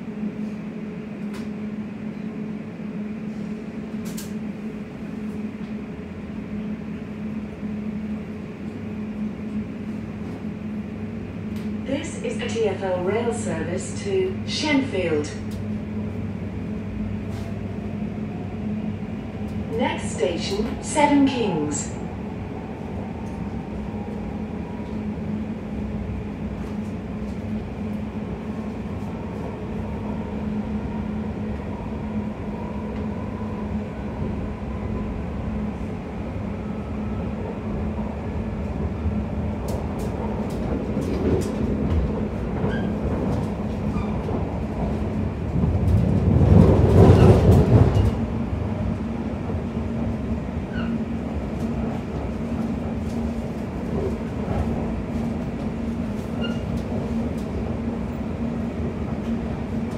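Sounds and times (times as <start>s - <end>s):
train rumble inside carriage: 0.0s - 59.9s.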